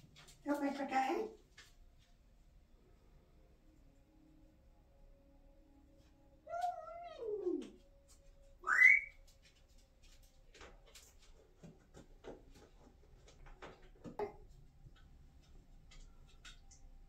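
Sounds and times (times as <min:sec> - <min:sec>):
parrot calling: 0:08.6 - 0:09.2
parrot rising whistle: 0:08.6 - 0:09.2.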